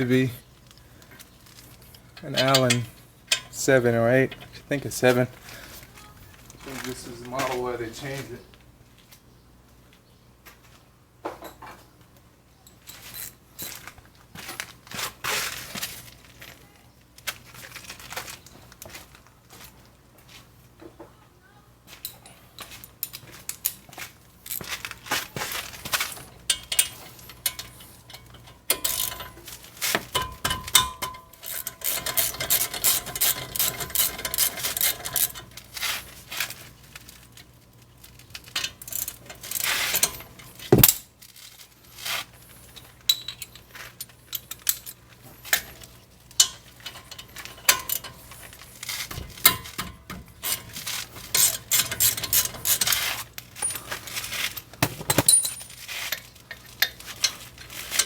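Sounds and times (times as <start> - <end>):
metal hand tools clinking: 1.9 - 4.7, 26.4 - 35.5, 44.3 - 58.0.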